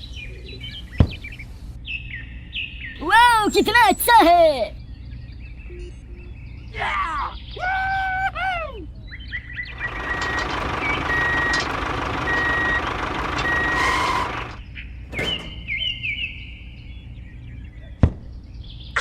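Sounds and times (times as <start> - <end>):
reversing alarm beeping: 9.8 - 14.6.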